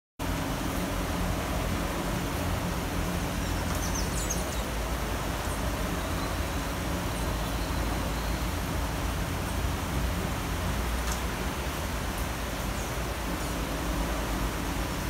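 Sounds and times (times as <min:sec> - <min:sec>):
low rumble of city traffic: 0:00.2 - 0:15.0
steady rain hiss: 0:00.2 - 0:15.0.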